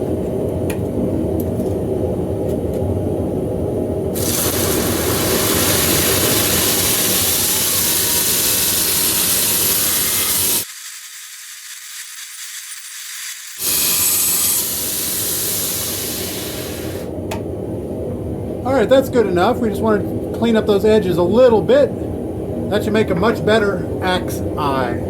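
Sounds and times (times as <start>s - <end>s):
belt grinder grinding steel: 4.2s - 17.1s.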